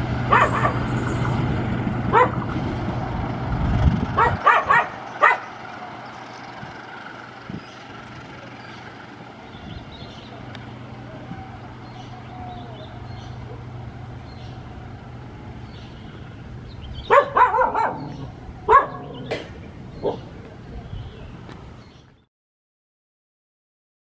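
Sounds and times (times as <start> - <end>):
train rumbling over rails: 0.0 - 20.6
dog barking: 0.3 - 0.8, 2.1 - 2.4, 4.2 - 5.6, 17.1 - 19.3, 20.0 - 20.3.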